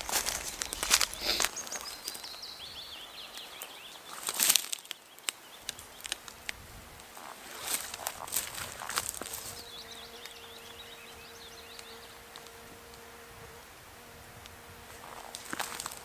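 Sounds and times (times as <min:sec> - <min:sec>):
small bird chirping: 0:00.0 - 0:06.2, 0:09.3 - 0:12.5
footsteps crunching on woodland ground: 0:00.0 - 0:13.0, 0:14.4 - 0:16.0.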